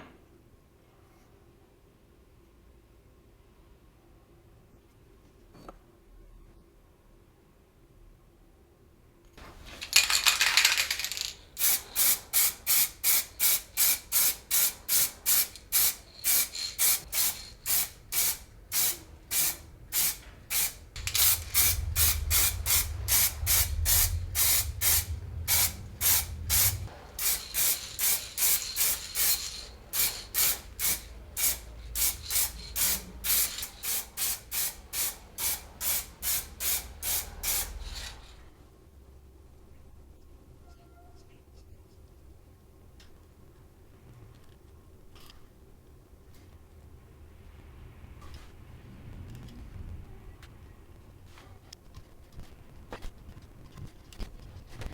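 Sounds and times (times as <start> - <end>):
spray paint bursts: 9.4 - 38.3
low rumble: 20.9 - 30.0.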